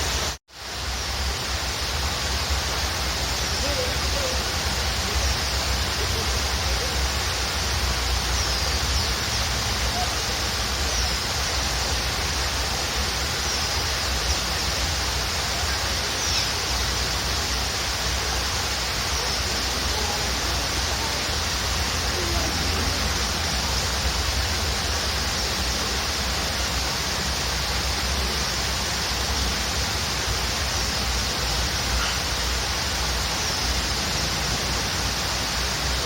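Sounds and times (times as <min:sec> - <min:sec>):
waterfall rushing: 0:00.0 - 0:36.0
small birds chirping: 0:03.2 - 0:11.9, 0:13.0 - 0:17.2.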